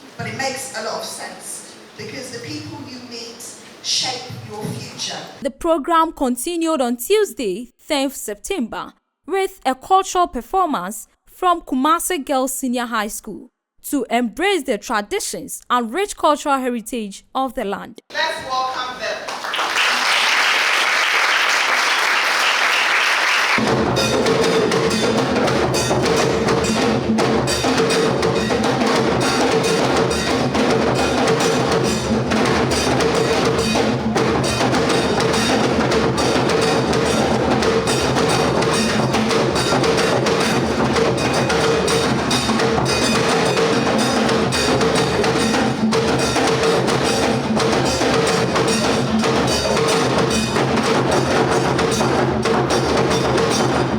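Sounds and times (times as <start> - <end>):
drum-led percussion music: 0.0 - 1.4, 3.8 - 5.5, 18.1 - 53.9.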